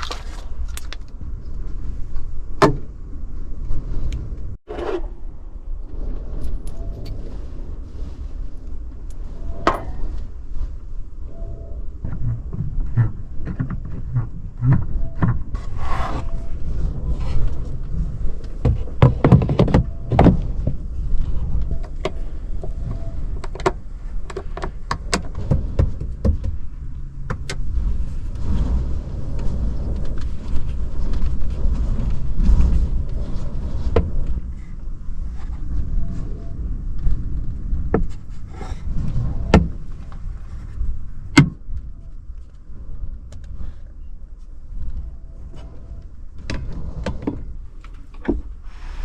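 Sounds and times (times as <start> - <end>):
low rumble: 0.0 - 49.0.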